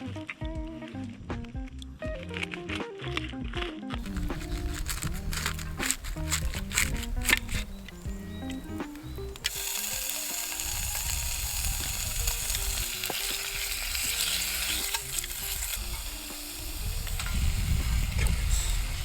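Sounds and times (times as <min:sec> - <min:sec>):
food sizzling in a pan: 0:04.0 - 0:19.0.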